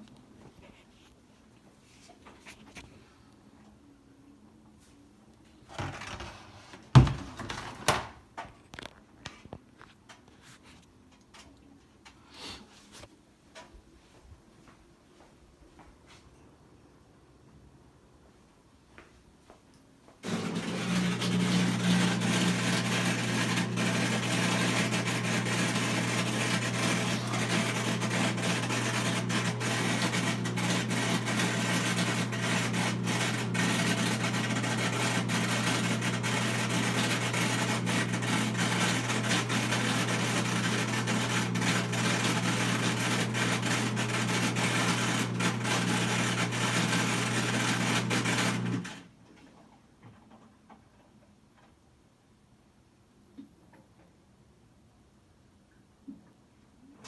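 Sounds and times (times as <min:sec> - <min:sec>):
washer drain pump rough noise: 0:05.7 - 0:08.1, 0:20.2 - 0:49.1.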